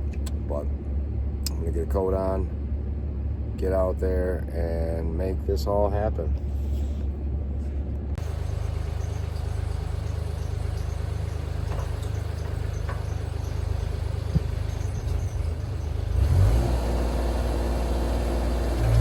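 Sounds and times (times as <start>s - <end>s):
engine idling: 8.2s - 19.0s.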